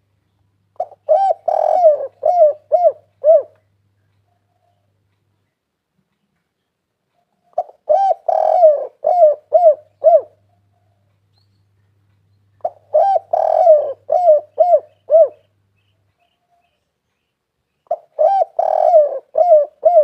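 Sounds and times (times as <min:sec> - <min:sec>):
dove cooing: 0:00.8 - 0:03.7, 0:07.4 - 0:11.0, 0:12.6 - 0:15.5, 0:17.9 - 0:20.0.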